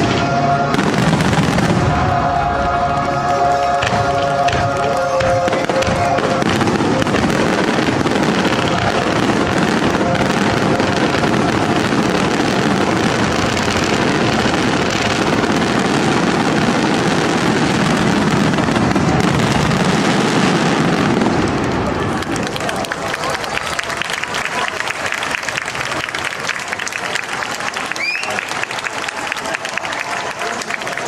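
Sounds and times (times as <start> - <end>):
music: 0.0 - 20.5
aerial fireworks crackling: 0.0 - 31.0.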